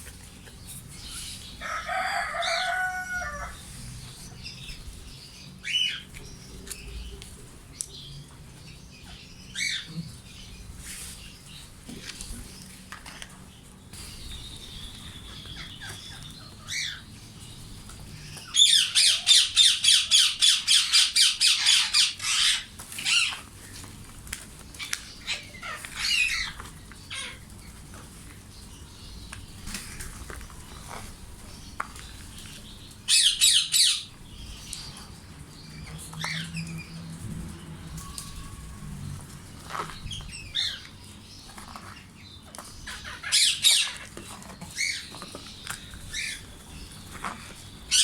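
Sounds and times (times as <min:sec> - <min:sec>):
parakeets calling: 0:00.4 - 0:07.1, 0:09.0 - 0:10.6, 0:14.0 - 0:23.8, 0:24.7 - 0:27.9, 0:28.8 - 0:48.0.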